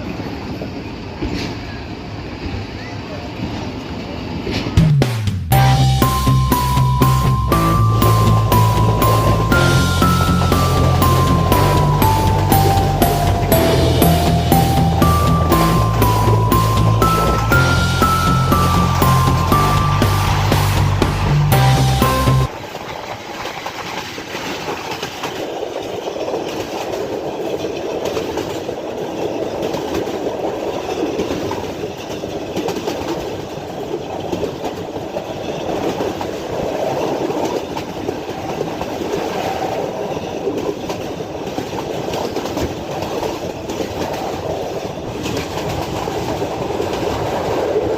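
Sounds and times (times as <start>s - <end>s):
train wheels rumbling on track: 22.9s - 47.9s.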